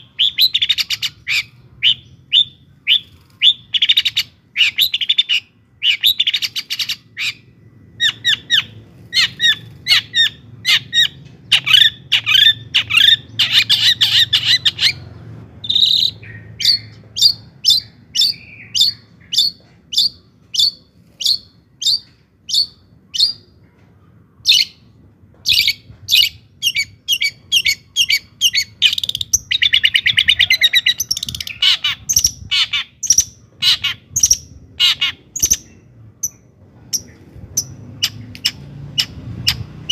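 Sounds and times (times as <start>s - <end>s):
sharp high bird calls: 0.0s - 23.5s, 25.5s - 36.4s
fast rattling bird trills: 8.0s - 23.4s.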